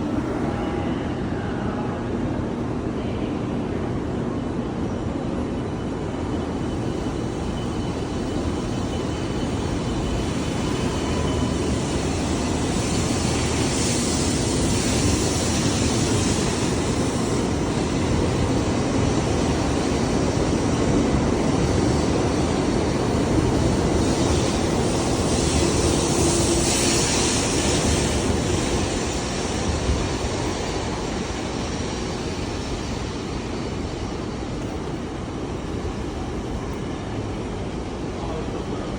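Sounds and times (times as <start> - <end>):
train pulling out: 5.4 - 38.9.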